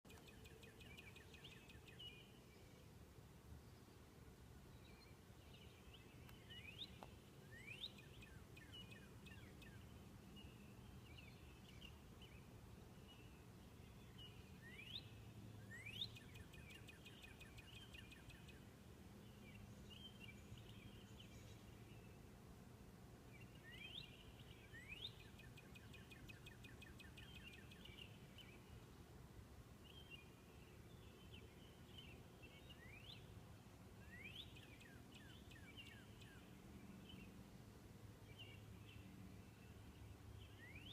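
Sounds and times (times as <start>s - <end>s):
soft bird chirping: 0.1s - 22.3s, 23.3s - 29.1s, 29.8s - 37.5s, 38.2s - 40.9s.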